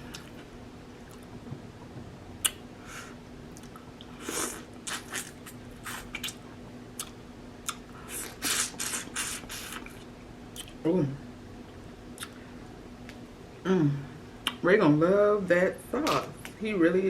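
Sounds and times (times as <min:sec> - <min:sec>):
wet chewing and lip-smacking: 0:04.8 - 0:06.4, 0:07.0 - 0:10.8, 0:11.7 - 0:12.4.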